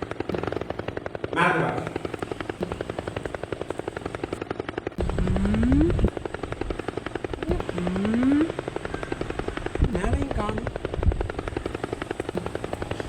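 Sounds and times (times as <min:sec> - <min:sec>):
helicopter rotor beating: 0:00.0 - 0:13.0
rising whine and deep rumble: 0:05.0 - 0:13.0.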